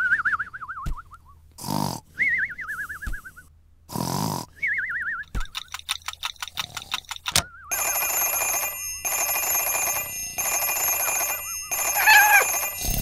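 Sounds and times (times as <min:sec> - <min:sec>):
clock fast ticking: 0:05.5 - 0:13.0
alarm clock bell ringing: 0:07.7 - 0:13.0
cat meowing: 0:12.0 - 0:12.6.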